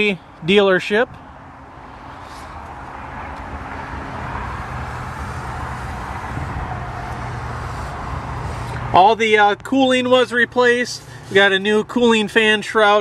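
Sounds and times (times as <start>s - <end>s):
vehicle engine hum: 0.0s - 13.0s
rushing noise: 1.7s - 9.0s.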